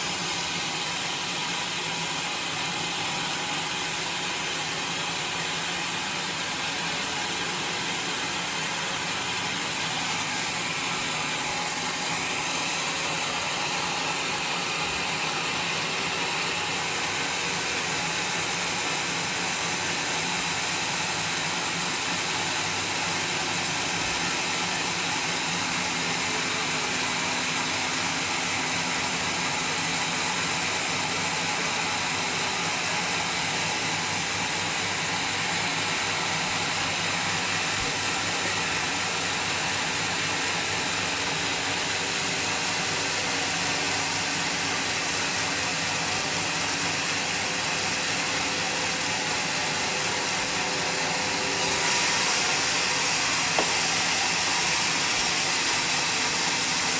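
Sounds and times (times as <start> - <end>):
saw hissing through log: 21.2 - 56.9.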